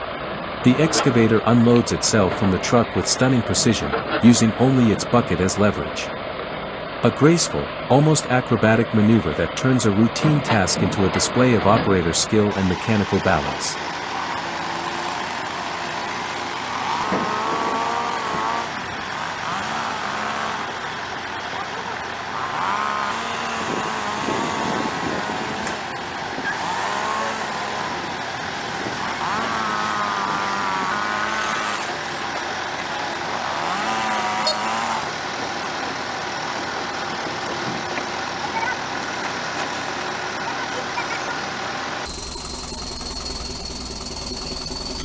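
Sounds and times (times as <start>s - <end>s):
diesel engine under load: 0.0s - 40.4s
hydraulics working: 42.1s - 45.0s.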